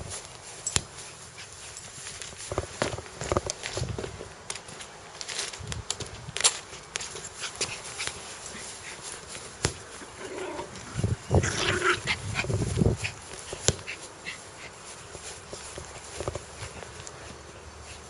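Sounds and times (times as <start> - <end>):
dog growling: 10.1 - 12.2.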